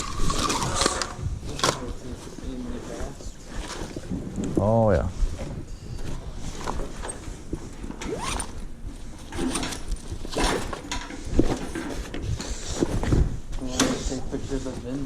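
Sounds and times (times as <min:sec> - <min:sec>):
items being handled and shifted: 0:00.0 - 0:15.0.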